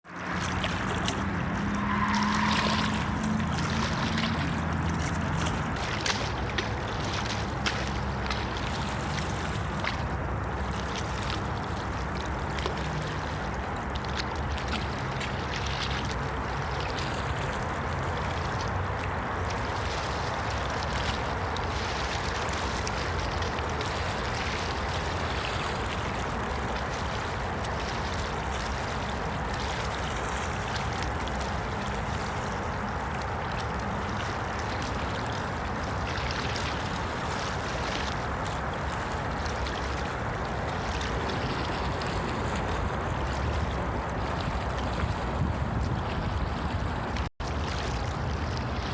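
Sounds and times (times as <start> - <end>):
water rushing: 0.0 - 48.9
low rumble: 0.2 - 5.8.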